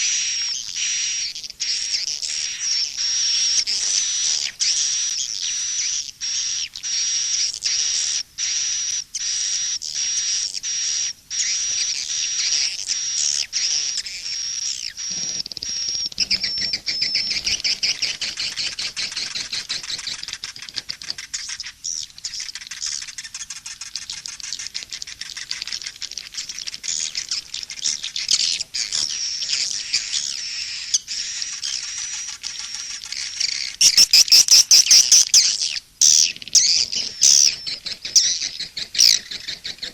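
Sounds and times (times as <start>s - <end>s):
rapid clicking twitters: 15.4s - 27.3s, 31.4s - 39.9s
swiftlets twittering: 33.8s - 39.6s.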